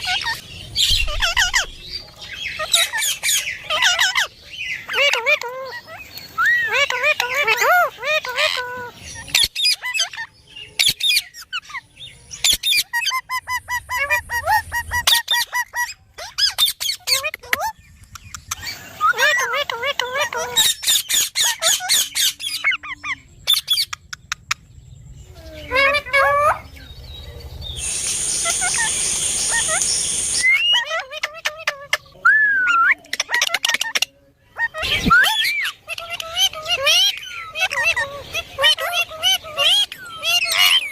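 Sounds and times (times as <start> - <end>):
parrot squawking and chirping: 0.0 - 24.6, 25.5 - 26.9, 27.7 - 40.9
steady hiss with high tone: 27.6 - 30.6
parrot chirping and whistling: 27.8 - 31.0.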